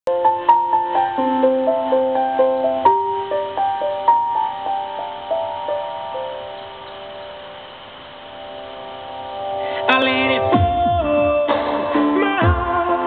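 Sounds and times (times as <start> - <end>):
solo piano ballad: 0.1 - 13.0.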